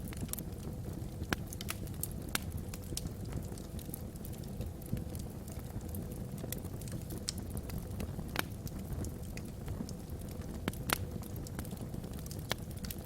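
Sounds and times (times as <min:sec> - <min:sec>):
logs crackling in fireplace: 0:00.0 - 0:13.0.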